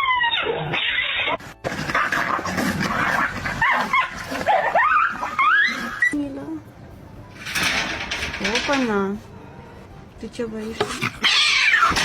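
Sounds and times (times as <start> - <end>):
dog whining and yipping: 0.0 - 2.1, 2.9 - 6.2, 11.0 - 12.0.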